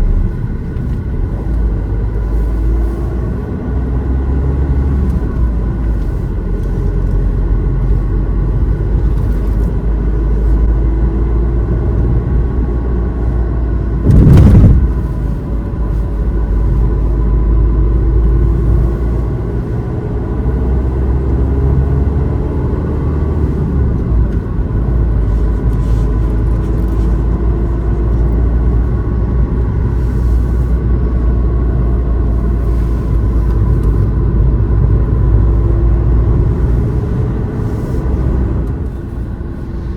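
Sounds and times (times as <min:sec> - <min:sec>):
car engine and road rumble: 0:00.0 - 0:39.9
loud thump: 0:14.0 - 0:15.2.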